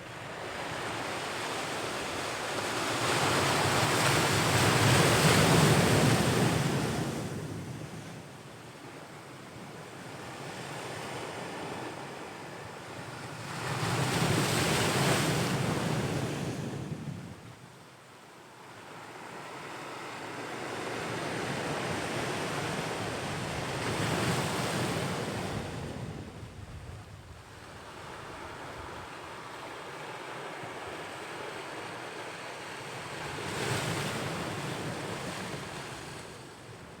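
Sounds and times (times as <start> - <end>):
wind on microphone: 25.0 - 29.1.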